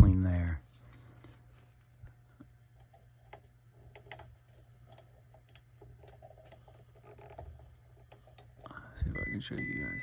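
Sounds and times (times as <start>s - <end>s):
low steady hum: 0.0s - 10.0s
faint clicks and tapping: 2.0s - 8.8s.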